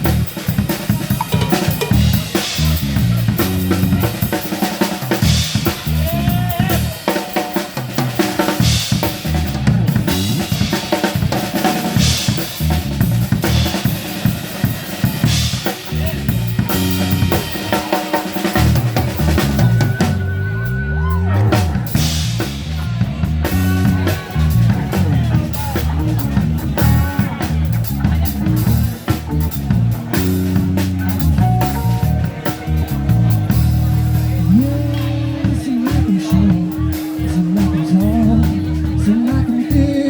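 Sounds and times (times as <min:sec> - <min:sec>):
drum kit with snare and rimshots: 0:00.0 - 0:40.0
live band playing: 0:00.0 - 0:40.0
low stepping bass line: 0:19.0 - 0:40.0.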